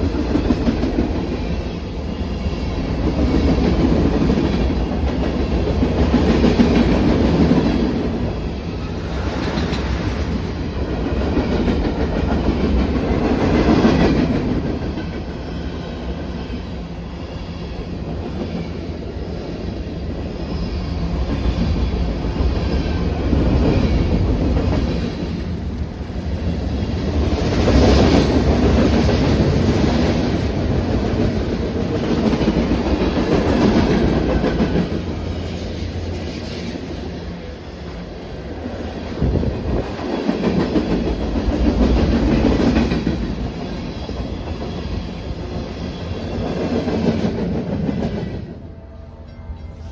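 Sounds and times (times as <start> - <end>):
train wheels clattering over rails: 39.0 - 48.6.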